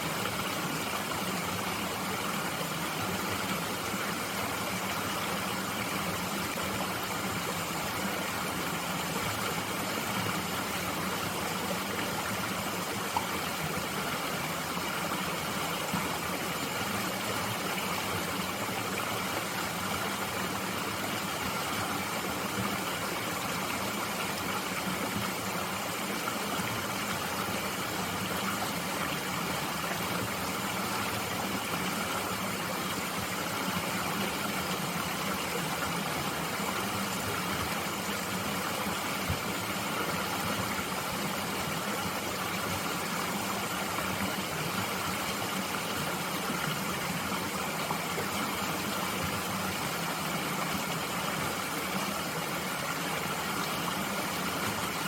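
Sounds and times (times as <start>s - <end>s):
mountain stream flowing: 0.0s - 55.0s.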